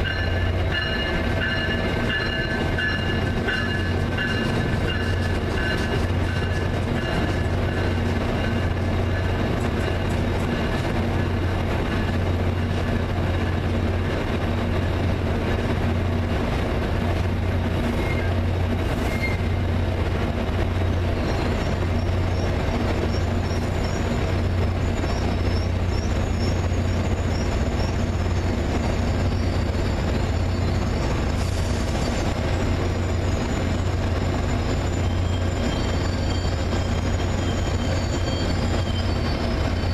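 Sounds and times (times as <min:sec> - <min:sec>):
train running with low hum: 0:00.0 - 0:39.9
high-pitched wheel squeal: 0:17.9 - 0:18.4, 0:19.0 - 0:19.6, 0:24.8 - 0:39.9.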